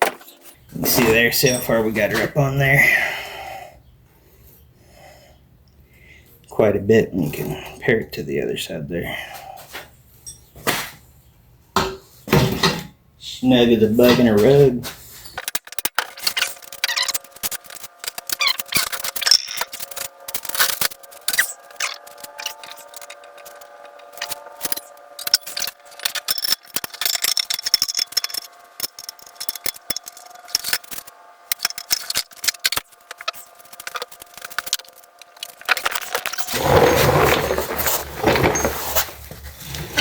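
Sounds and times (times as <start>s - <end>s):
faint steady hum: 0.6s - 15.4s
tools clicking and scraping on metal: 15.2s - 39.1s.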